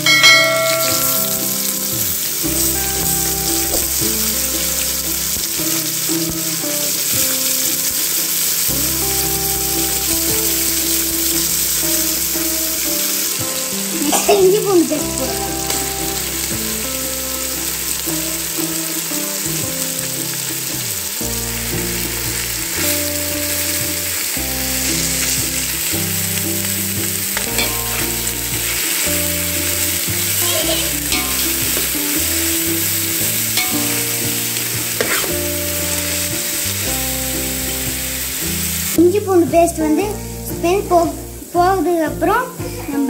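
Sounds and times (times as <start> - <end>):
food sizzling in oil: 0.0 - 39.1
metal spoon scraping a pot: 35.0 - 35.4.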